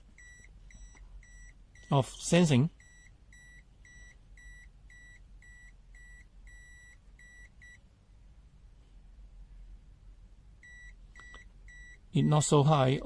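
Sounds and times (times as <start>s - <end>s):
multimeter high-pitched beeps: 0.2s - 2.0s, 2.8s - 7.8s, 10.6s - 12.5s.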